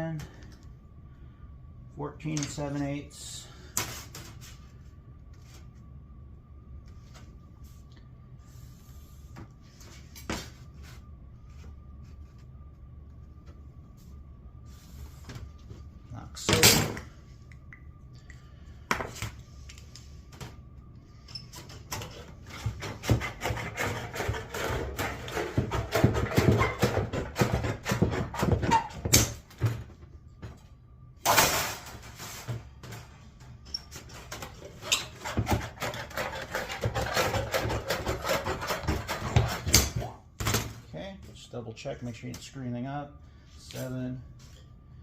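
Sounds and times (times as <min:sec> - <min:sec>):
hand tools working sheet metal: 0:21.6 - 0:29.4, 0:34.0 - 0:40.2.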